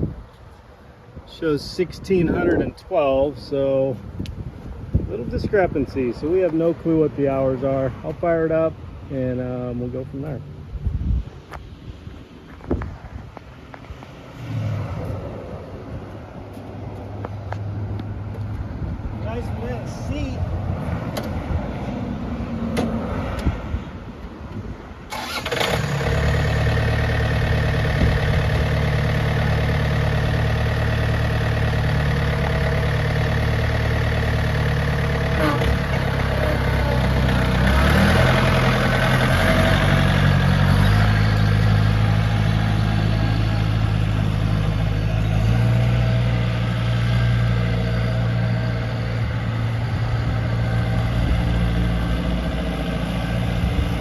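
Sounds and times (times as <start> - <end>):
tractor diesel engine starting: 25.1 - 54.0.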